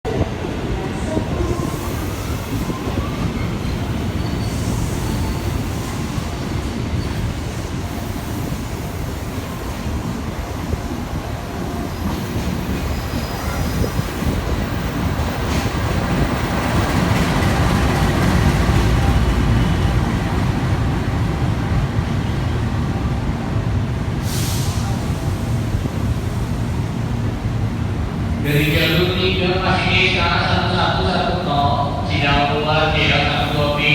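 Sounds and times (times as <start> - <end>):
train rumbling on rails: 0.0 - 33.9
air hiss: 24.2 - 25.1.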